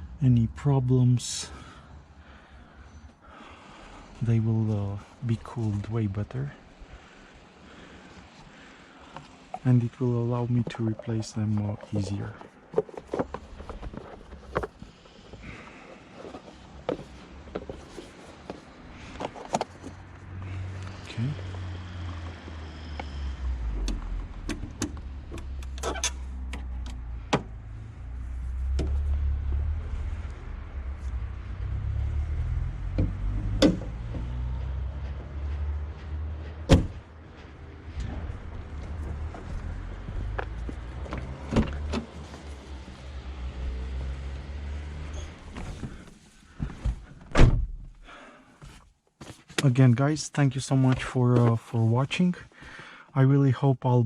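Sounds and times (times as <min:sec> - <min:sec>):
hands handling car parts: 0:08.3 - 0:21.1, 0:45.0 - 0:49.8
steady low rumble: 0:33.8 - 0:40.8
car door slam: 0:36.7 - 0:37.0, 0:47.3 - 0:47.9.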